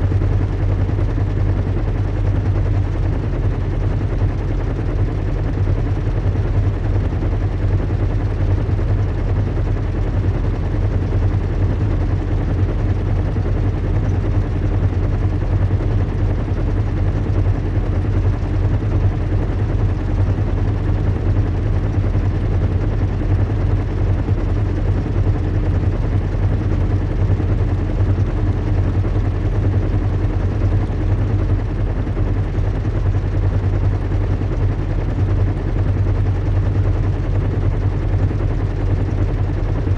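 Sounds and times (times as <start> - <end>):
fluttering engine hum: 0.0 - 39.9.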